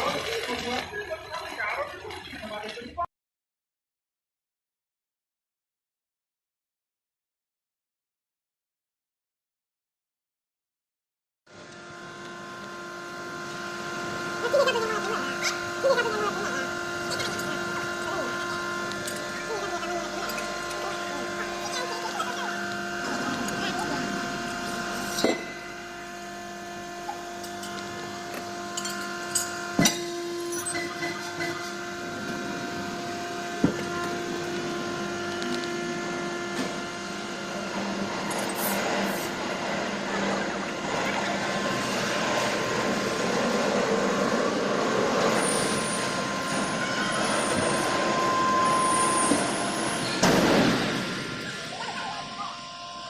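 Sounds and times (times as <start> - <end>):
factory machinery humming: 11.5 - 53.0.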